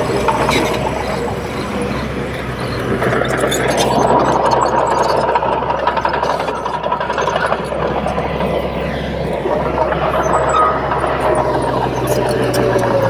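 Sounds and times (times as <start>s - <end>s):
bulldozer diesel engine running: 0.0s - 13.0s
steel tracks clattering: 0.0s - 13.0s.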